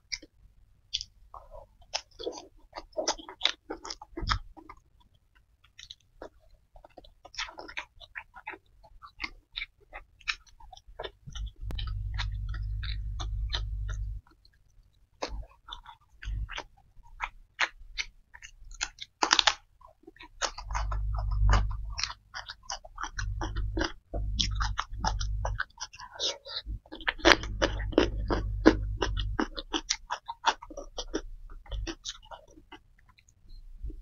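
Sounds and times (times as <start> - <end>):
close chewing with crunchy clicks: 0.0 - 34.0
low rumble: 11.3 - 14.2, 20.6 - 22.2, 23.0 - 25.6, 26.6 - 29.8.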